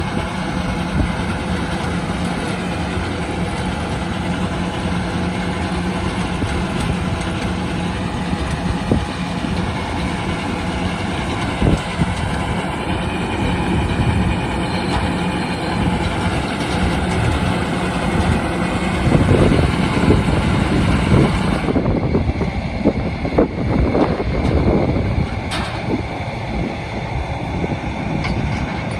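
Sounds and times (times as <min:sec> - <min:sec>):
baler machinery: 0:00.0 - 0:28.9
tractor running: 0:00.0 - 0:28.9.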